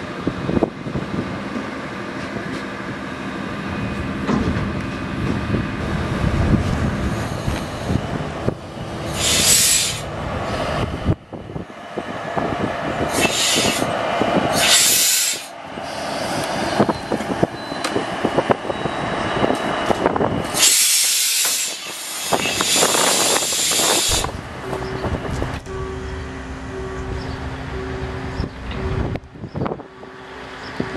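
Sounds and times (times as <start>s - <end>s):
diesel railcar idling: 0.0s - 30.9s
compressed air hissing: 9.0s - 10.1s, 13.1s - 16.8s, 20.5s - 24.4s.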